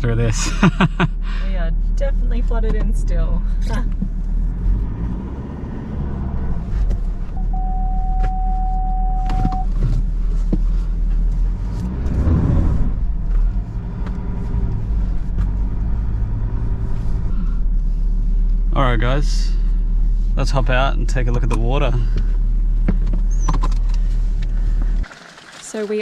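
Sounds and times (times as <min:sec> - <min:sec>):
vehicle engine rumble: 0:00.0 - 0:26.0
electronic beep: 0:07.4 - 0:09.7.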